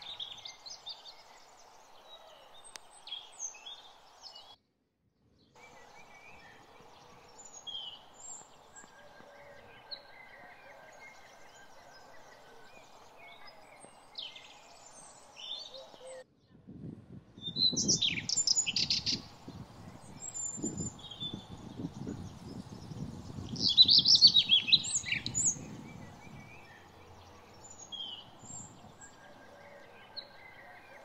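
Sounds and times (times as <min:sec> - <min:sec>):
songbirds chirping and singing: 0:00.0 - 0:04.6, 0:05.6 - 0:16.3, 0:17.4 - 0:31.0
bird's loud repeated chirps: 0:17.5 - 0:31.0.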